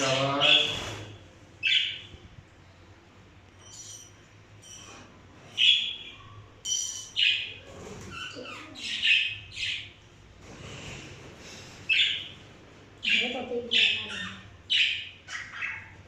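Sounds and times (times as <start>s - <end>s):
parrots squawking: 0.0s - 2.2s, 5.6s - 10.0s, 11.8s - 12.4s, 13.0s - 16.0s.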